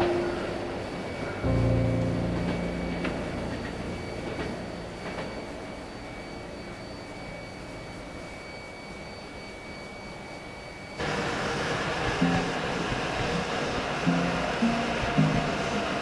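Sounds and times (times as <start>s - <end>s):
train rumble pulling away: 0.0s - 6.8s, 11.0s - 16.0s.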